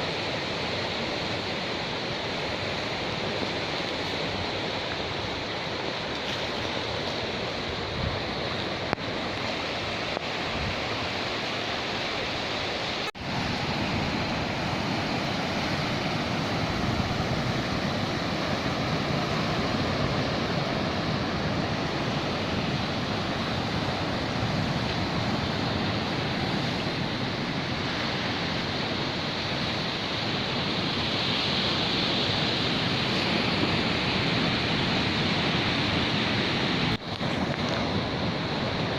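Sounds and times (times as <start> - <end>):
surf on rocky shore: 0.0 - 38.9.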